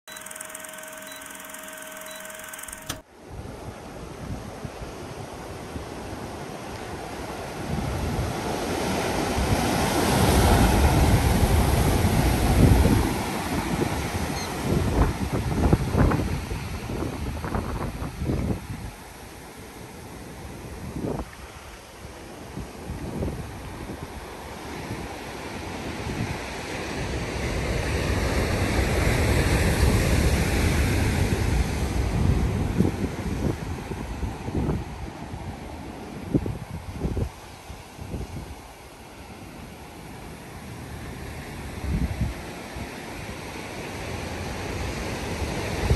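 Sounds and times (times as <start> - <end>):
ocean waves washing: 3.8 - 17.0.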